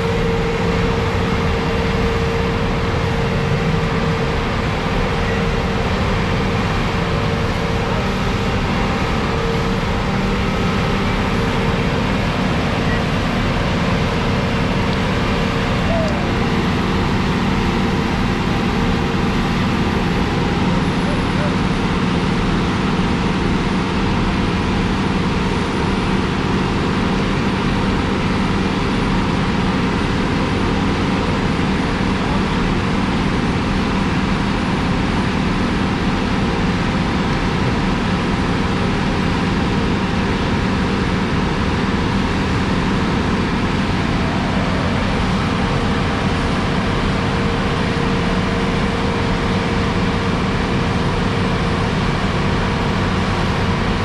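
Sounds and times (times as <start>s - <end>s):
diesel paving machine running: 0.0s - 54.0s.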